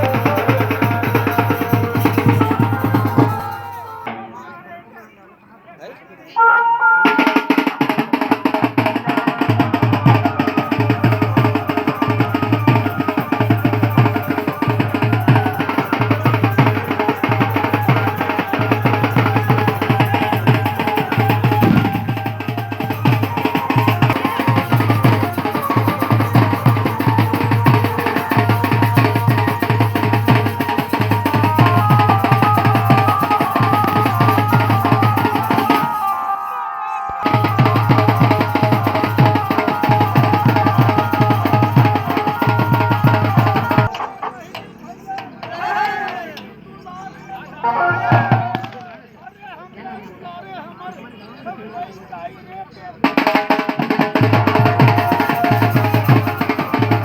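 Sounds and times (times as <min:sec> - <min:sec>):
high melody line: 0:00.0 - 0:04.4, 0:09.1 - 0:44.5
drums beating: 0:00.0 - 0:04.6, 0:07.0 - 0:46.9, 0:47.6 - 0:48.9, 0:52.9 - 0:57.0.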